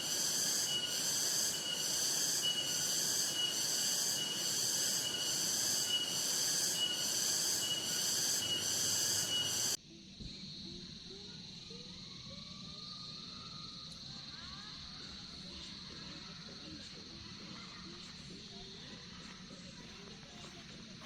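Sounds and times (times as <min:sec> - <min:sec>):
insects buzzing shrilly: 0:00.0 - 0:09.8
high insect chirp: 0:00.0 - 0:21.0.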